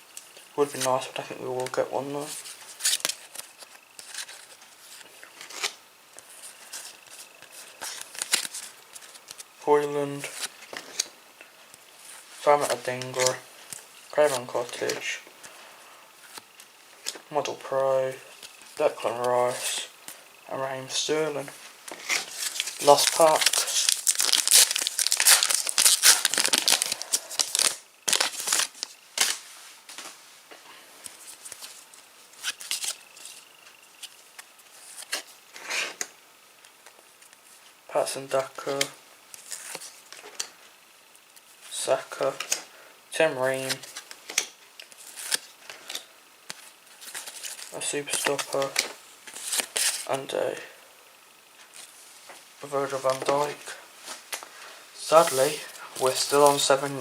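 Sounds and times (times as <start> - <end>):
cards rustling: 0.6 - 11.2, 12.0 - 15.6, 21.3 - 30.0, 31.0 - 36.1, 38.4 - 40.5, 43.6 - 50.6, 51.6 - 57.0
foil pack tearing and crinkling: 7.8 - 9.2, 22.0 - 29.4, 32.4 - 33.4, 43.9 - 46.0.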